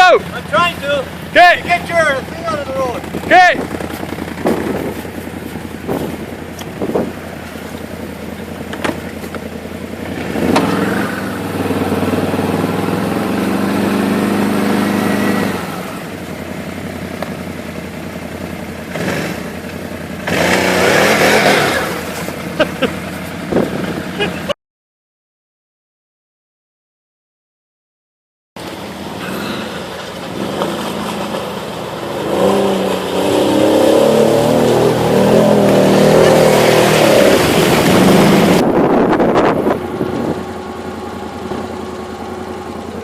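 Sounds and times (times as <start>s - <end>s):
tracked vehicle engine revving: 0.0s - 24.6s, 28.6s - 43.0s.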